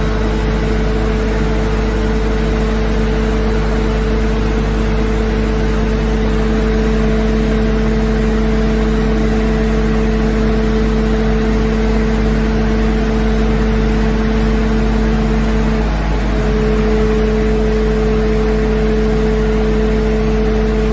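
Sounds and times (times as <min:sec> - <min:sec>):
loader engine running: 0:00.0 - 0:20.9.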